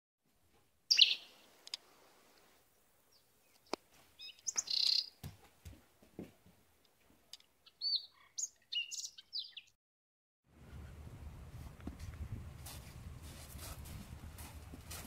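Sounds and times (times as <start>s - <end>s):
birds chirping: 0.9s - 1.6s, 2.7s - 5.4s, 7.3s - 9.8s
low steady rumble: 10.5s - 15.0s.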